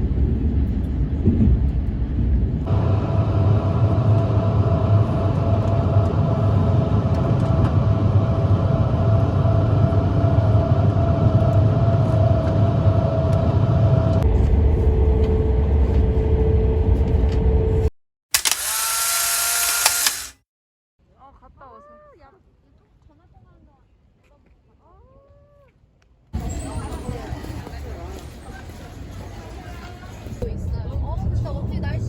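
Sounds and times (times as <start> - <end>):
train rumble: 0.0 - 17.9.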